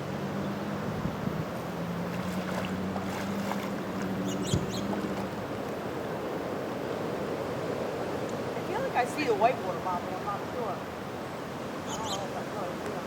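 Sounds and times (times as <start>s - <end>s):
low motor hum: 0.0s - 6.0s
distant surf: 0.0s - 13.0s
wind: 0.0s - 13.0s.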